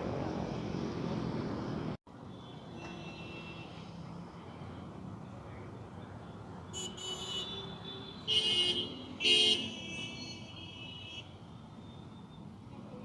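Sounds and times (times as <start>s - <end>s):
background noise: 0.0s - 13.0s
vehicle horn honking: 6.8s - 11.2s.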